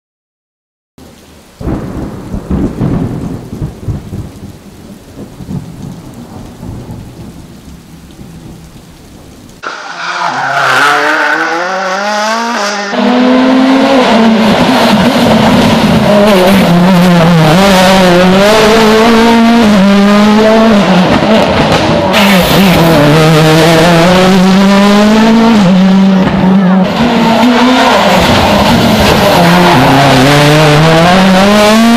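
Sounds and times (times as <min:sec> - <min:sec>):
rally car engine revving: 0:09.6 - 0:31.9.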